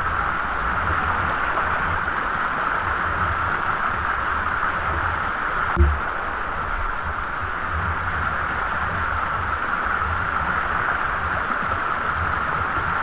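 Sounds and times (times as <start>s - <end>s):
low rumble: 5.7s - 7.6s
dull thump: 5.8s - 6.1s.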